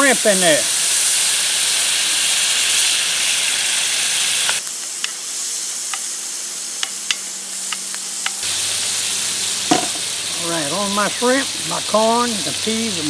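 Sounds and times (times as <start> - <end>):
vegetables sizzling in a hot pan: 0.0 - 13.0
sharp popping of frying food: 0.2 - 10.4.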